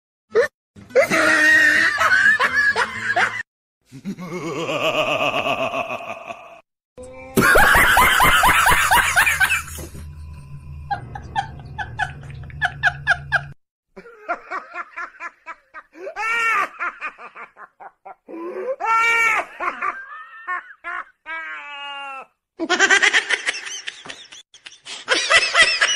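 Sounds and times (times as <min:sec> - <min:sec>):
music: 0:00.8 - 0:03.4
bursts of laughter: 0:01.0 - 0:06.6, 0:07.4 - 0:09.8.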